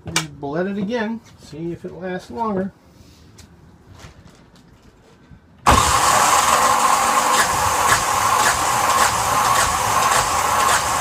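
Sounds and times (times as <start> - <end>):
diesel engine starting and running: 5.6 - 11.0.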